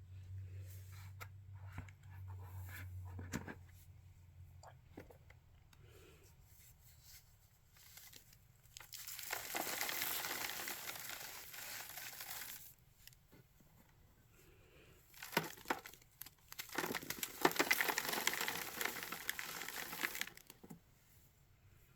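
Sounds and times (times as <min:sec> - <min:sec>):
cornstarch being crushed: 0:07.8 - 0:13.2, 0:15.1 - 0:20.8.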